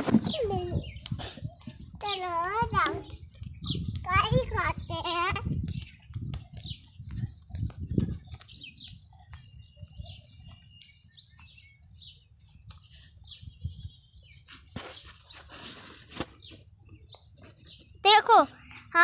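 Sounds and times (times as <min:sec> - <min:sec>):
small bird chirping: 0:00.1 - 0:15.7, 0:16.3 - 0:18.4.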